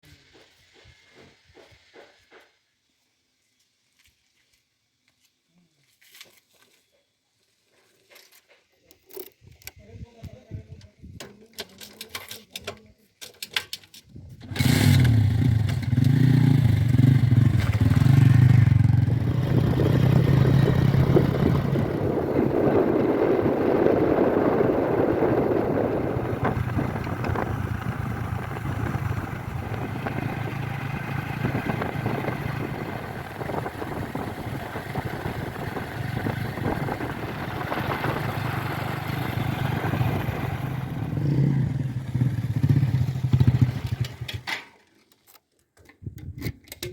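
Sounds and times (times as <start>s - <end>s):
heavy machinery diesel engine: 14.6s - 42.1s.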